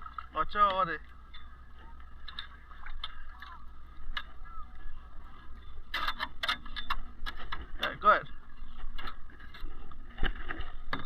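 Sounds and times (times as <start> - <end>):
water splashes: 0.0 - 5.2.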